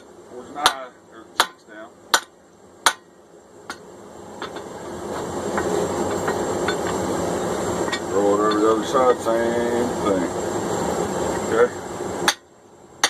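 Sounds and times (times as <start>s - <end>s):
steady rushing hiss: 0.0s - 13.0s
hammer striking steel drift: 0.6s - 3.1s, 12.2s - 12.5s.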